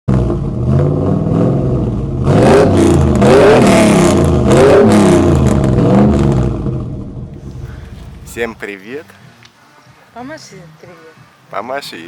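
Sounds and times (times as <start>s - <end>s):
vehicle engine revving: 0.1s - 8.8s.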